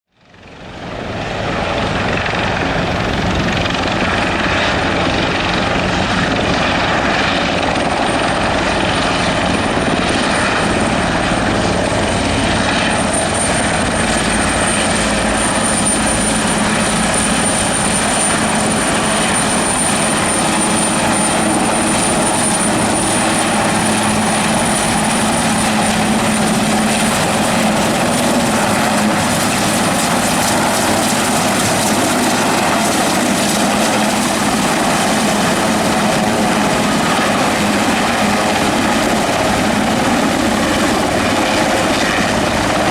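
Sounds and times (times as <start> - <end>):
helicopter rotor and engine noise: 0.1 - 42.9
high turbine whine: 0.9 - 42.9.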